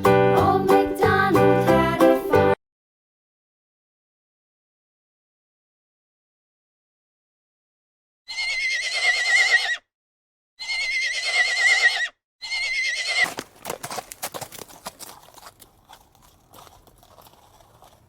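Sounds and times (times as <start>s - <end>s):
horse whinnying: 8.3s - 9.8s, 10.6s - 15.3s
hooves clip-clopping: 13.1s - 18.0s.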